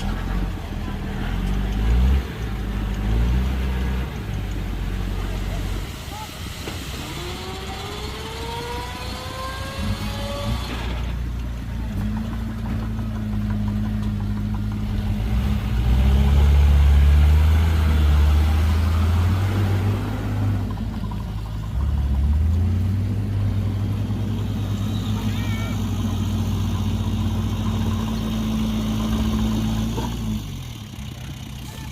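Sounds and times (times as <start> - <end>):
heavy diesel engine drone: 0.0 - 31.9
rising whine: 5.8 - 11.1.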